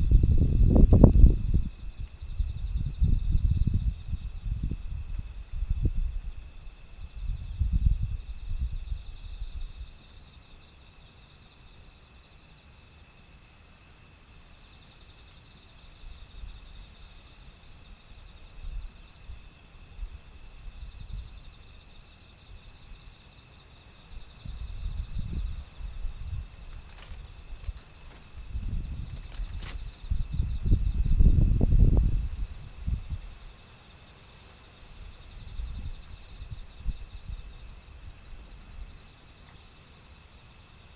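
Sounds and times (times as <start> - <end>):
wind buffeting microphone: 0.0 - 9.9, 24.3 - 33.4, 35.1 - 38.8
insects chirping: 0.0 - 40.9.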